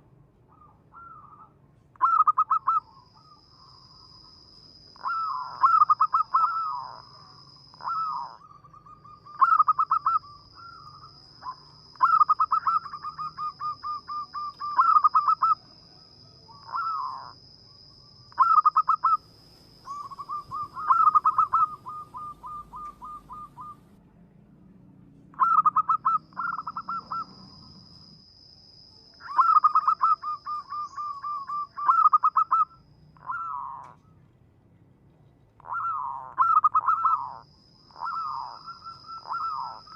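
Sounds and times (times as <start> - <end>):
dove cooing: 0.5 - 3.4, 5.0 - 17.4, 18.3 - 19.2, 19.8 - 24.0, 25.4 - 27.7, 29.2 - 34.1, 35.6 - 39.9.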